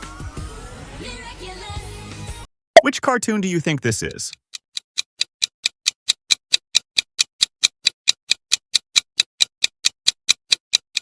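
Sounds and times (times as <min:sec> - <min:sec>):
clock ticking: 0:02.8 - 0:11.0.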